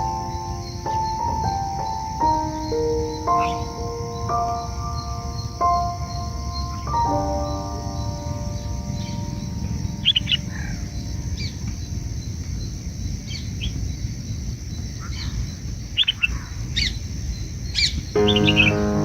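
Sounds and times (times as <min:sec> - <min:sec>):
background music: 0:00.0 - 0:11.4, 0:18.2 - 0:19.0
high bird chirps: 0:00.0 - 0:11.8, 0:17.8 - 0:19.0.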